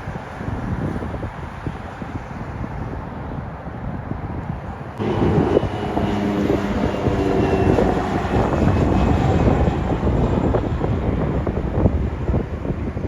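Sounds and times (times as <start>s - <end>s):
wind buffeting microphone: 0.0s - 13.0s
jet airliner engines rumbling: 4.1s - 13.0s.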